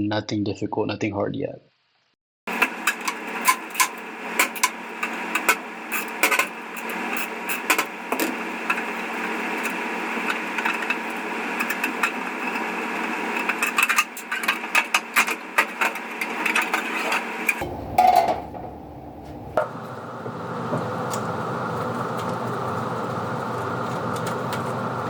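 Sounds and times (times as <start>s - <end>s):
steady whirring noise: 17.5s - 21.3s.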